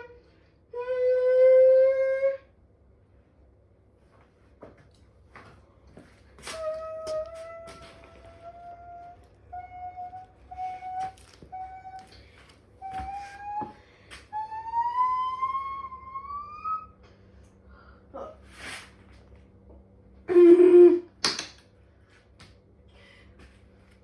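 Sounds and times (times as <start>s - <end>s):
washing machine motor whine: 5.9s - 21.2s.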